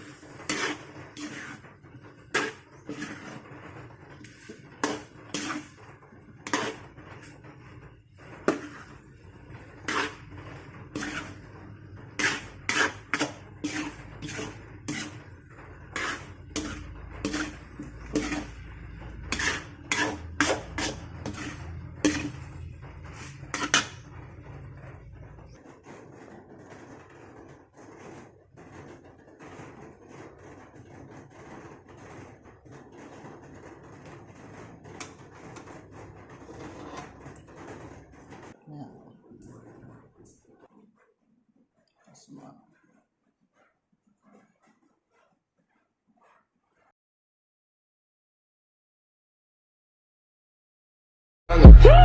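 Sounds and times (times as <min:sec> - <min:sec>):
utensils clattering on pots and dishes: 0:00.0 - 0:25.6, 0:31.9 - 0:38.6.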